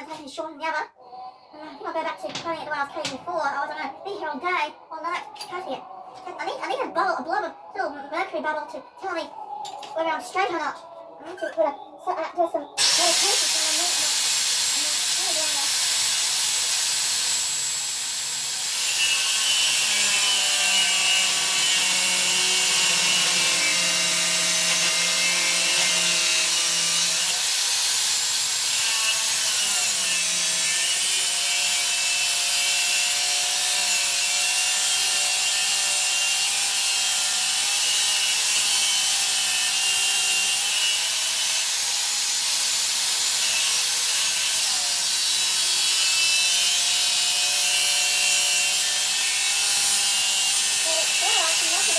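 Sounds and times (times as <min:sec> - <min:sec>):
power tool cutting steel: 0:12.8 - 0:51.9.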